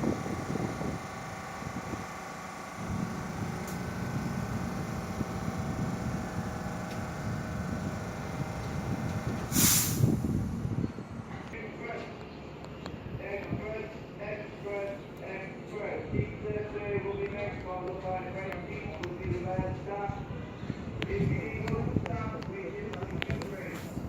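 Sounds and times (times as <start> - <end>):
brake air hiss: 1.0 - 10.8.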